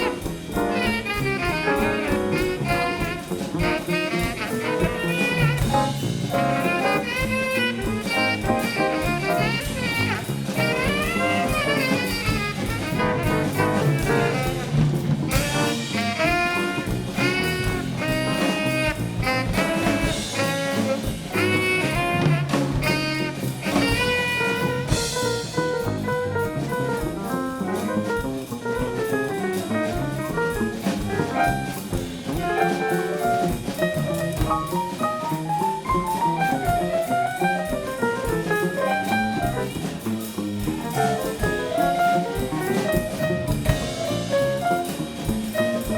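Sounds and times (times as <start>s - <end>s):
bass: 0.0s - 45.9s
drum kit: 0.0s - 45.9s.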